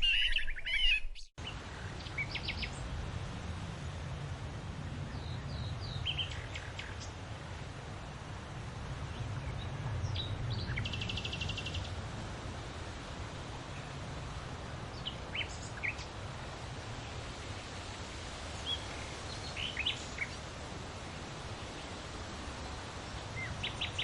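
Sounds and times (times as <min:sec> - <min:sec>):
bird trill: 0:00.0 - 0:01.3
birds chirping: 0:00.0 - 0:03.0, 0:04.8 - 0:07.6, 0:08.2 - 0:24.0.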